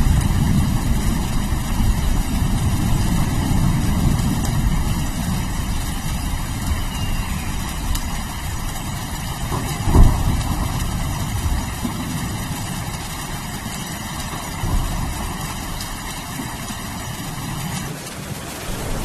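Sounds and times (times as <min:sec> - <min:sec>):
loud crack of thunder: 0:00.0 - 0:12.7
low rumble of thunder: 0:00.0 - 0:19.0
rain hissing: 0:00.0 - 0:19.0.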